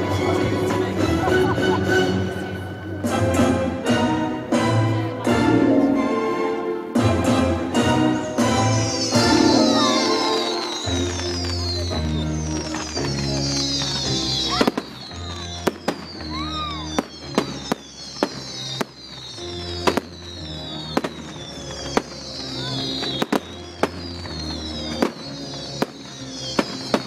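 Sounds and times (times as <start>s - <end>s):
loud music: 0.0s - 12.5s
fireworks bangs: 8.2s - 27.0s.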